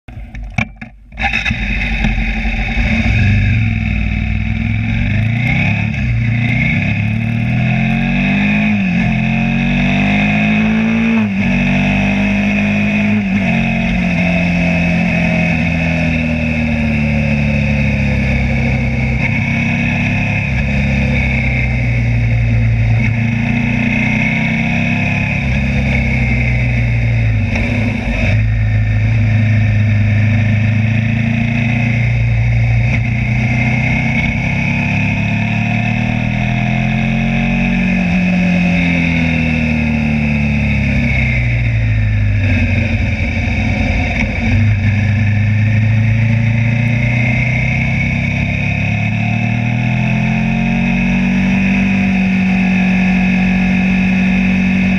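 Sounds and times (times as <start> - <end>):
motorcycle engine: 0.0 - 54.9.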